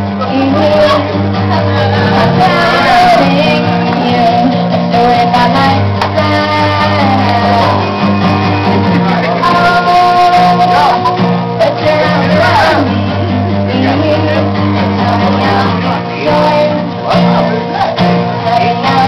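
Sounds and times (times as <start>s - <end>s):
person singing: 0.0s - 8.2s, 9.0s - 19.0s
strummed guitar: 0.0s - 19.0s.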